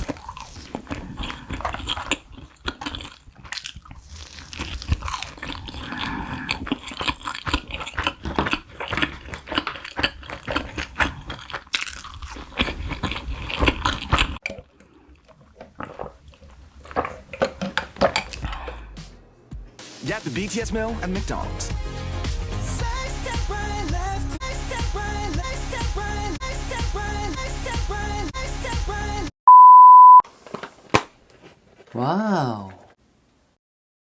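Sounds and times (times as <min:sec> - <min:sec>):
crunchy bites and chewing: 0:00.0 - 0:19.0.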